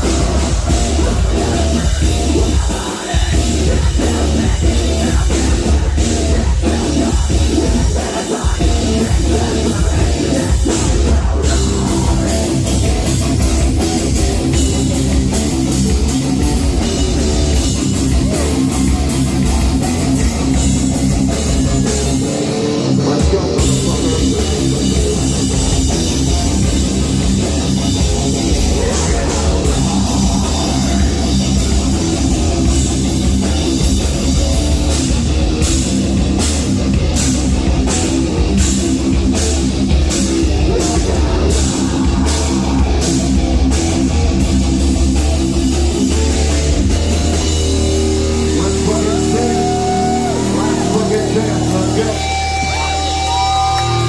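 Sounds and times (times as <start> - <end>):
bass guitar: 0.0 - 54.0
distorted guitars: 0.0 - 54.0.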